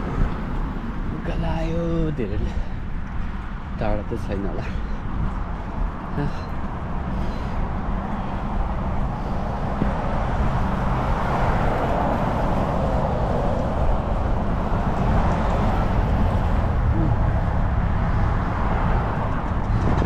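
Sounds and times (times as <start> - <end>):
road noise: 0.0 - 20.0
wind rumble on microphone: 0.0 - 20.0.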